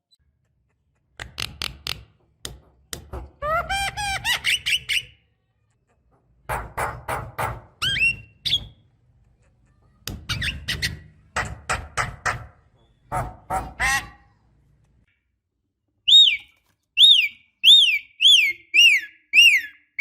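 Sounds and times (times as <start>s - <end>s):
bird clicks and whistles: 16.1s - 19.8s.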